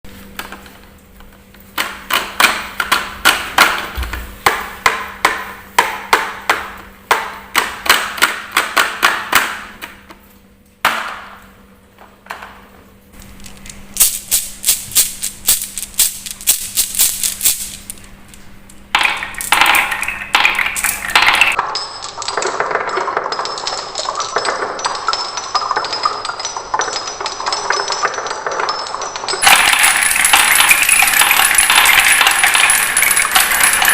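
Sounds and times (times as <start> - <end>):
rolling rattle: 13.2 - 18.1, 18.9 - 33.9
balls clattering down marble run: 14.0 - 18.0, 18.9 - 33.9.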